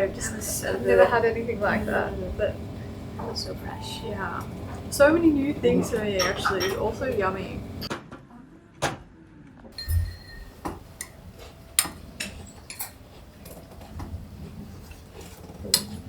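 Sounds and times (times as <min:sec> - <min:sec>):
dishes and utensils clinking: 0:03.2 - 0:07.9, 0:09.8 - 0:16.0.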